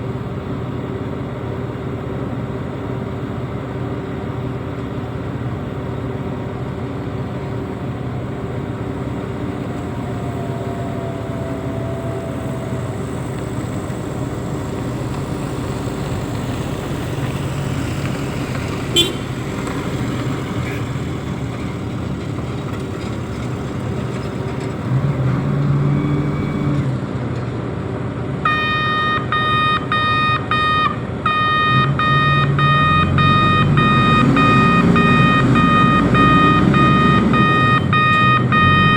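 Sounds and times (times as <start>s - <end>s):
diesel engine running: 0.0s - 38.9s
electronic warning beeper: 28.5s - 38.9s.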